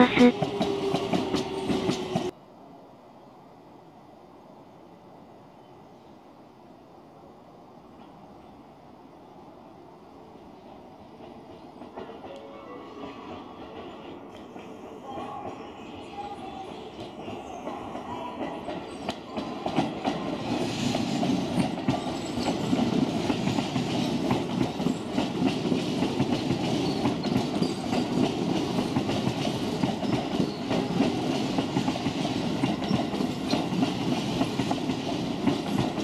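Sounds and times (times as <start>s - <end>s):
train wheels clacking on rails: 0.0s - 2.3s, 11.0s - 36.0s.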